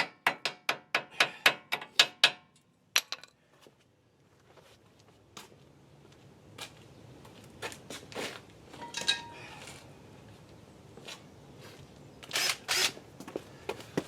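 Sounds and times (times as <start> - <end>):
metal brake parts clinking: 8.8 - 9.6.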